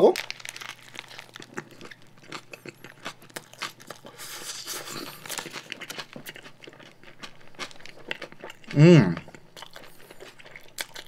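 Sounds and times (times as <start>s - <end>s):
paper wrapper crinkling: 0.0s - 2.2s
person chewing with crunching: 0.0s - 11.0s.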